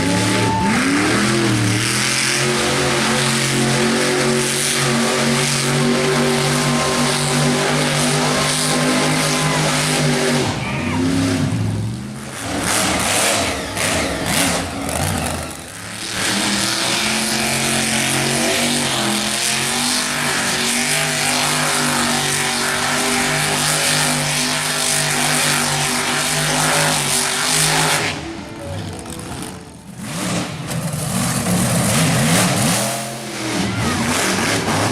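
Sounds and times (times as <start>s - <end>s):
monster truck engine revving: 0.0s - 34.9s.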